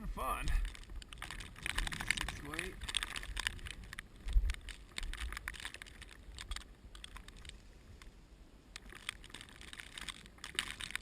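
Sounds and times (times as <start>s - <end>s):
wind buffeting microphone: 0.0s - 8.0s
rapid clicking and crackling: 0.4s - 8.1s, 8.7s - 11.0s.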